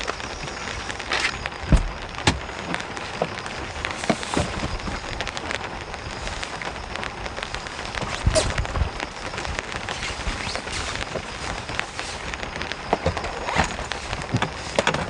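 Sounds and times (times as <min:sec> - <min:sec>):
heavy rain tapping on a surface: 0:00.0 - 0:15.0.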